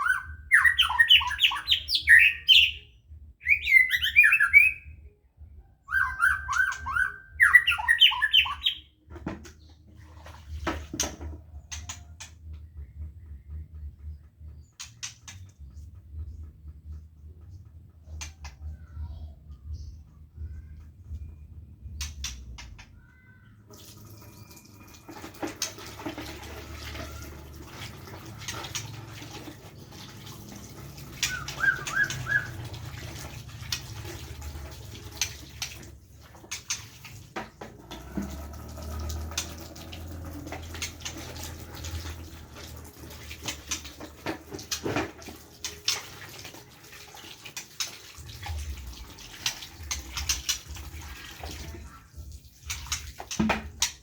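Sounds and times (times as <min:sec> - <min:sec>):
knocks and clatters: 0:09.1 - 0:18.6, 0:25.1 - 0:46.1, 0:52.6 - 0:54.0
water running and splashing: 0:23.7 - 0:54.0.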